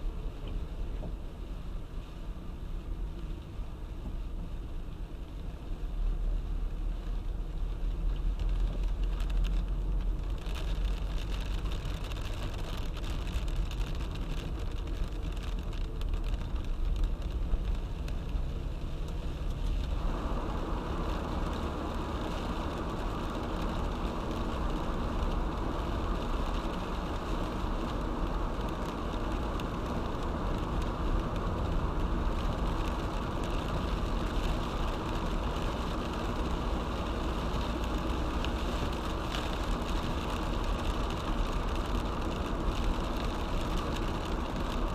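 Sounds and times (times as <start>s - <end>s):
low road rumble: 0.0s - 44.9s
rain and wet tyres hissing: 0.0s - 44.9s.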